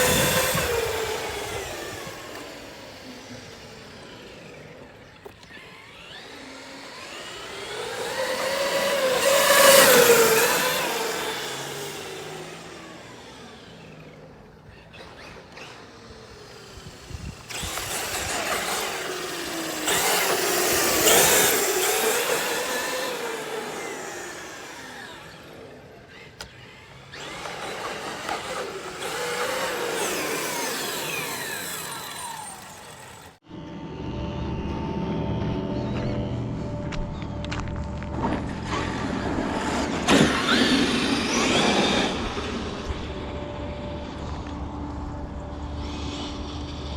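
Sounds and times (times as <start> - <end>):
electric rc car motor whining: 0.0 - 33.4, 38.2 - 46.9
tyres rushing: 0.0 - 33.4.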